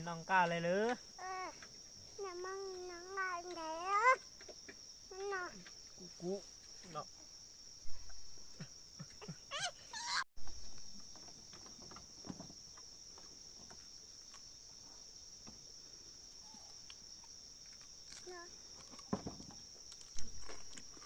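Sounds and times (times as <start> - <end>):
insect chirring: 0.0 - 21.0
wavering animal call: 9.5 - 10.2.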